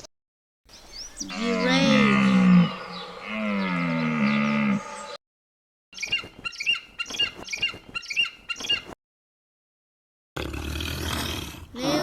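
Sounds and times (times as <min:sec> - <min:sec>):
bird chirping: 0:00.7 - 0:05.2, 0:06.0 - 0:09.0.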